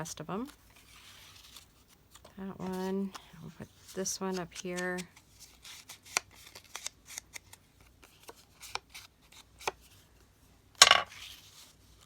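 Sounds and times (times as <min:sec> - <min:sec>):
paper rustling and clicking: 0:00.4 - 0:09.8.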